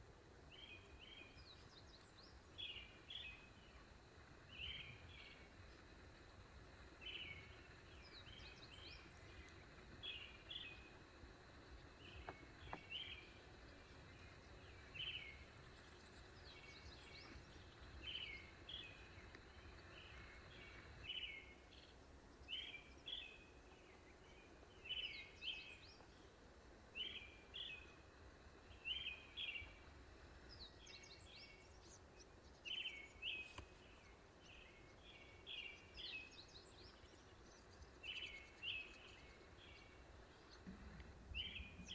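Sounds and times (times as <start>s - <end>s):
birds chirping: 0.5s - 41.9s.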